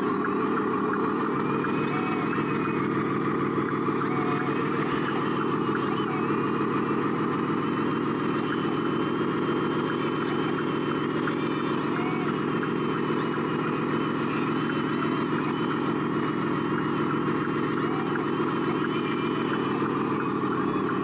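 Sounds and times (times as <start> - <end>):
faint motor whines: 0.0 - 21.0
motor and gear drone: 0.0 - 21.0.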